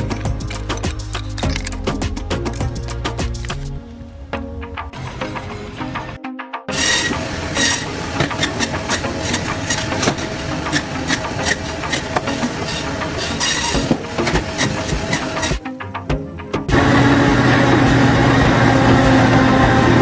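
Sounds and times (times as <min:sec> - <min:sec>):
mechanical clattering: 0:00.0 - 0:03.8, 0:07.0 - 0:15.6.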